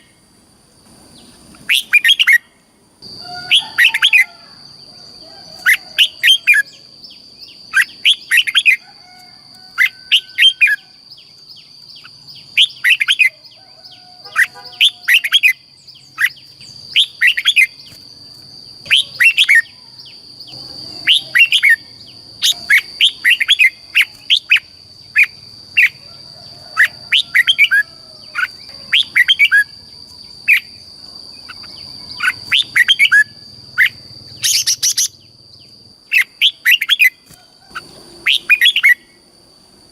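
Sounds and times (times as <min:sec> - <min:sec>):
bulbul singing whistled notes: 0:18.8 - 0:26.0, 0:31.4 - 0:35.4, 0:36.1 - 0:39.2.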